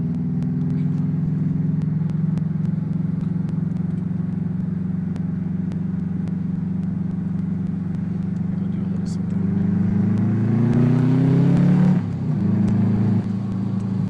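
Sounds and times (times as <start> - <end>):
car exhaust drone: 0.0 - 14.0.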